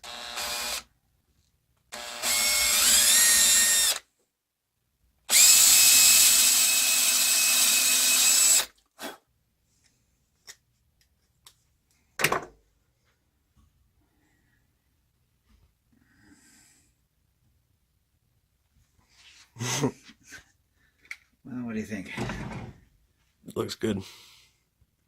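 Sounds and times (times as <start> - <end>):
rotary tool grinding wood: 2.0 - 4.0, 5.3 - 8.8.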